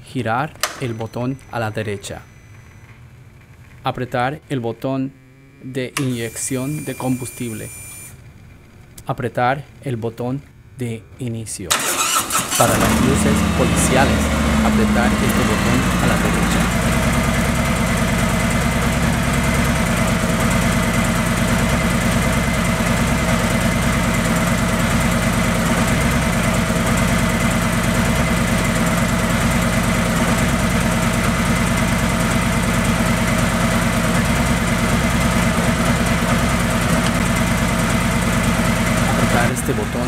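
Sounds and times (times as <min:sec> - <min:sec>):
motorcycle engine idling: 0:12.0 - 0:40.0.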